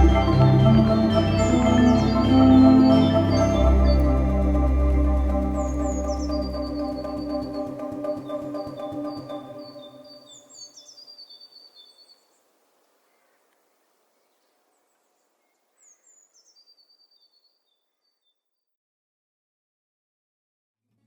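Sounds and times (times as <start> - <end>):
organ-like music: 0.0 - 10.3
bird chirping: 0.0 - 12.5.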